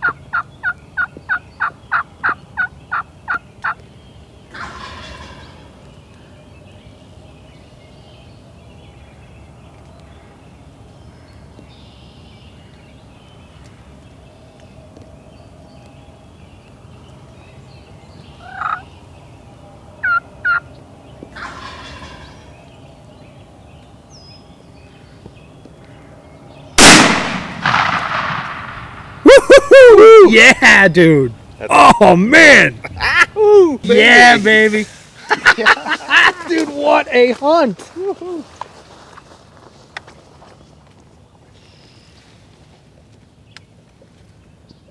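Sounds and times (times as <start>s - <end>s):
turkey gobbling: 0.0s - 3.8s, 4.5s - 5.8s, 18.4s - 18.9s, 20.0s - 20.7s, 21.4s - 22.4s
shotgun blast: 26.8s - 29.2s.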